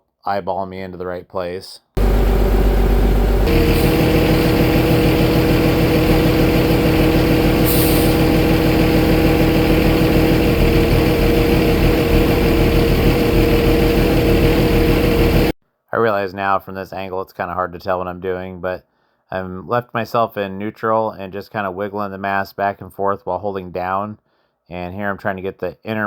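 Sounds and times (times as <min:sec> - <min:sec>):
forklift engine running: 0:02.0 - 0:15.6
steady whine: 0:02.0 - 0:15.6
short hiss: 0:07.6 - 0:08.2.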